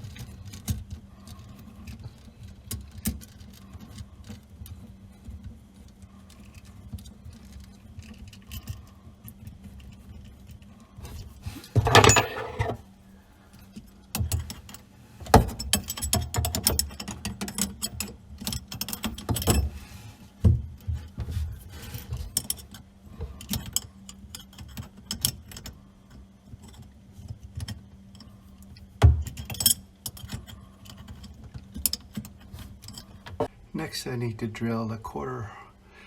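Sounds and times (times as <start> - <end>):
faint steady hum: 0.0 - 36.0
tools clicking and scraping fittings: 11.6 - 12.8.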